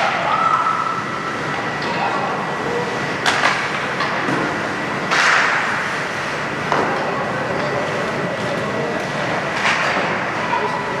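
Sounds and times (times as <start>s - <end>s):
faint voices: 6.5s - 11.0s.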